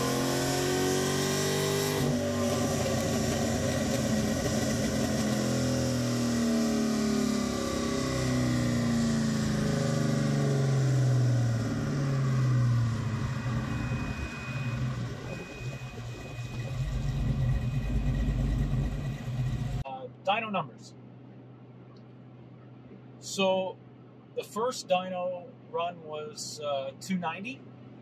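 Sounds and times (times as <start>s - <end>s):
car engine revs falling: 0.0s - 6.8s.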